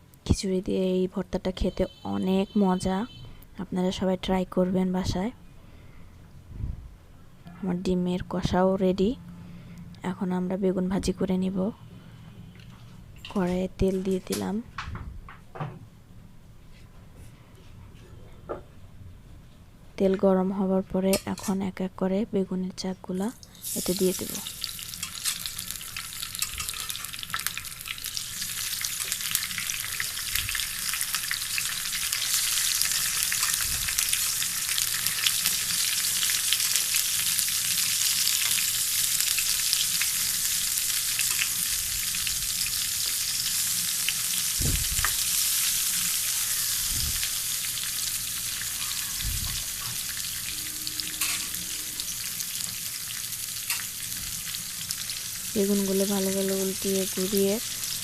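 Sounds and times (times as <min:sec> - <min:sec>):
aubergine sizzling in hot oil: 0:23.5 - 0:58.0.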